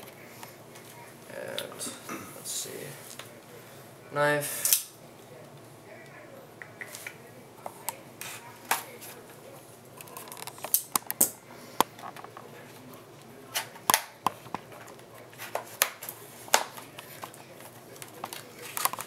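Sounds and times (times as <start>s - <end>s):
plastic packaging crackling and snapping: 10.0s - 12.4s, 13.6s - 19.0s.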